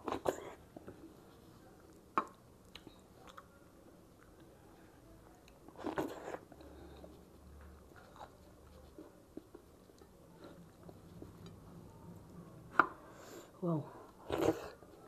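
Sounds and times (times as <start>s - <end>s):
person chewing: 1.9s - 3.5s, 5.4s - 11.6s.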